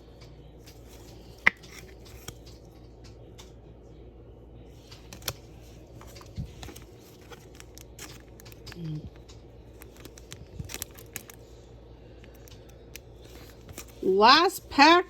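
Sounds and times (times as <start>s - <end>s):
cards sliding and rustling: 4.8s - 8.4s.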